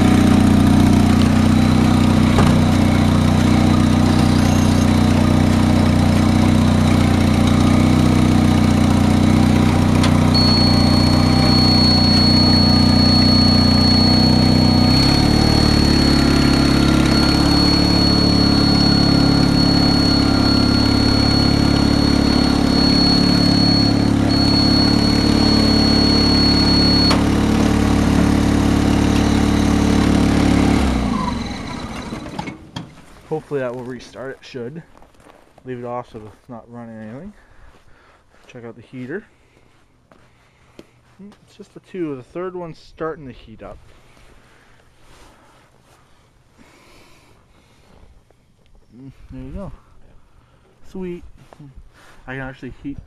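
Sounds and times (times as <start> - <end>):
car engine running: 0.0 - 32.4
high-pitched squeal: 1.9 - 5.5, 10.3 - 32.3.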